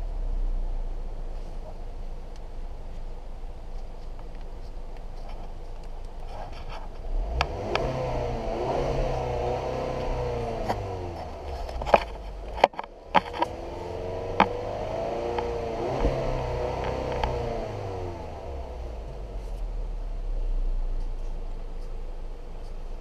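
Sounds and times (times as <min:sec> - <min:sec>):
car engine revving: 0:07.0 - 0:23.0.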